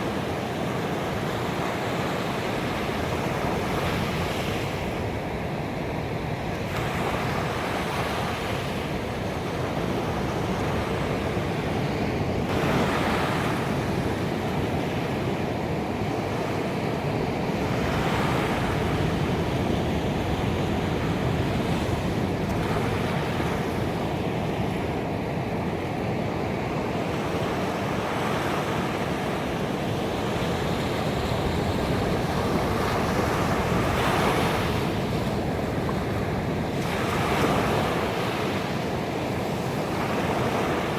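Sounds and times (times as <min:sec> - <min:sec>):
ocean waves crashing on beach: 0:00.0 - 0:40.9.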